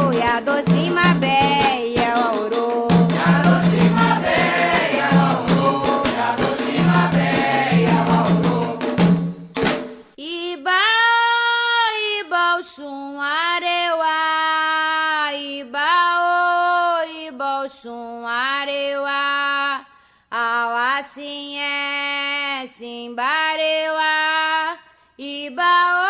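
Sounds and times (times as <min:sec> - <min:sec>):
group singing over drums: 0:00.0 - 0:09.9.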